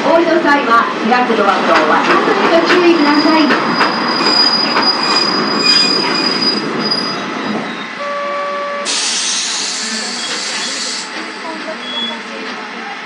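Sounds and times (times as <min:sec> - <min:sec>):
train rumbling: 0:00.0 - 0:13.0
high brake squeal: 0:03.1 - 0:08.0, 0:08.7 - 0:12.4
compressed air hiss: 0:08.9 - 0:11.2.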